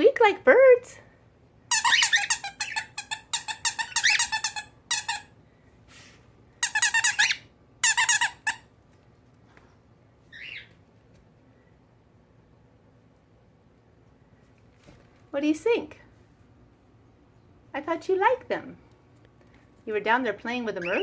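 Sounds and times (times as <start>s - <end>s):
squeaky rubber toy squeaking: 1.7s - 5.3s, 6.6s - 8.7s.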